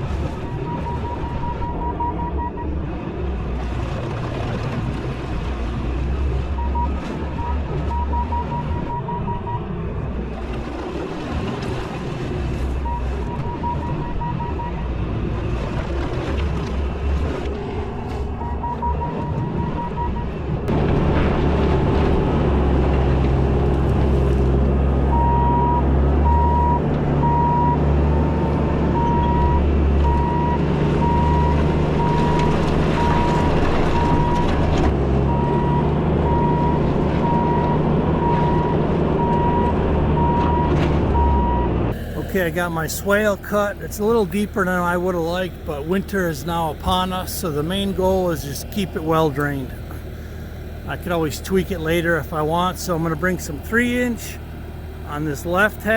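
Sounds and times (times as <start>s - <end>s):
diesel engine under load: 0.0s - 55.9s
backup alarm beeping: 0.3s - 2.8s, 6.6s - 9.7s, 12.8s - 15.0s, 18.3s - 20.4s, 25.1s - 34.5s, 35.3s - 48.0s.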